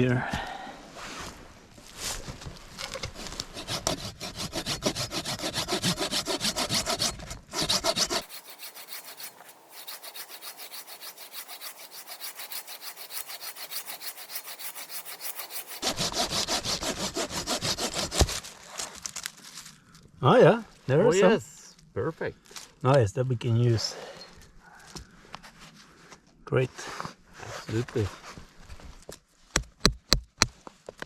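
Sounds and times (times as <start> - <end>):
hand saw cutting wood: 2.8 - 18.5.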